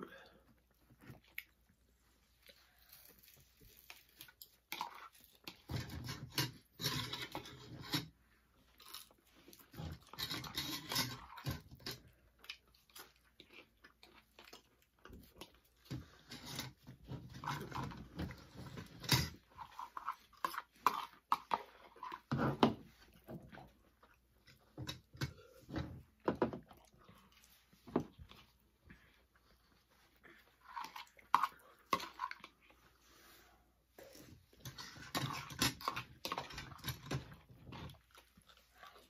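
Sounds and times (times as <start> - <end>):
people chewing with wet mouth sounds: 0.0 - 39.0
fork scraping plastic bowl: 5.6 - 8.2, 9.7 - 12.0, 34.6 - 37.4.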